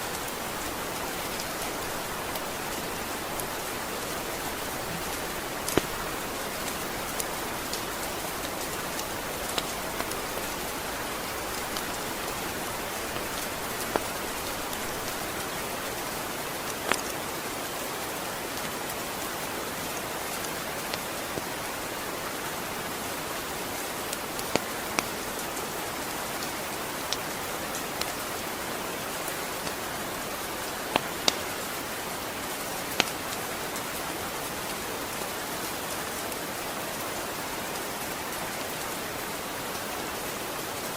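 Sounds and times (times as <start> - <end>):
steady rain falling: 0.0 - 40.9
sharp taps of raindrops: 0.1 - 17.8, 24.1 - 25.6, 26.4 - 28.2, 29.2 - 31.7, 32.8 - 33.9.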